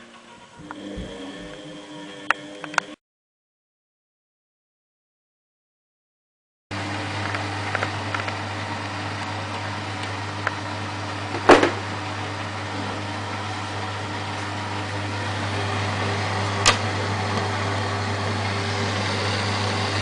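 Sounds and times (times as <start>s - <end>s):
laundry appliance humming: 0.0s - 3.0s, 6.7s - 20.0s
loud knock: 11.4s - 11.8s.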